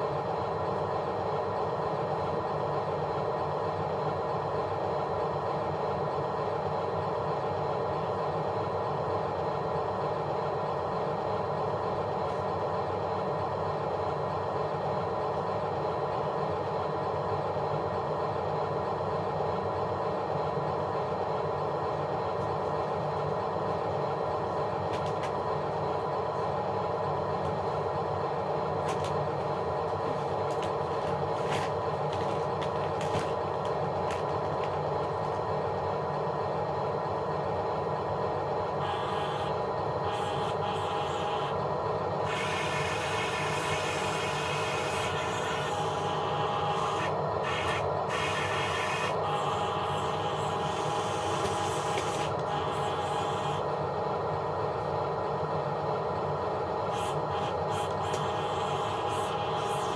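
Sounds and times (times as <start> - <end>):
motor hum: 20.0 - 55.2, 56.1 - 59.9
sharp clicks and clatter: 30.4 - 35.5.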